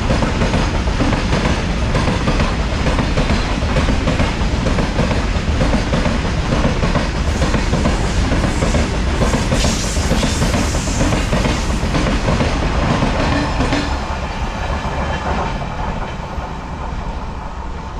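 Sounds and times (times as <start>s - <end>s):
train wheels clattering over rail joints: 0.0s - 14.0s.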